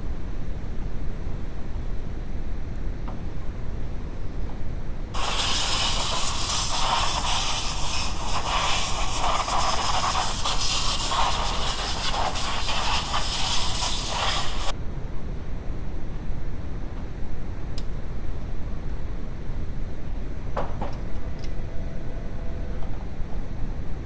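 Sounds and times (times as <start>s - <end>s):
loud steady hiss: 5.1s - 14.8s
constant low rumble: 11.1s - 24.0s.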